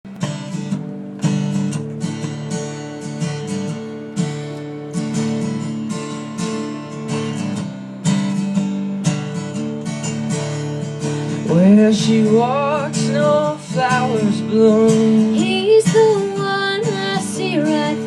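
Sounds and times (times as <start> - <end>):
acoustic guitar strumming: 0.1 - 18.0.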